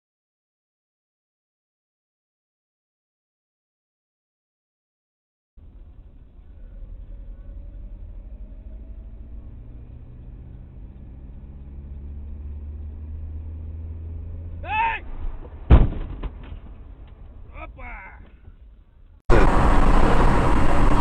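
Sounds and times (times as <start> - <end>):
vehicle engine and road noise: 5.6 - 21.0
high-pitched squeal: 19.3 - 21.0.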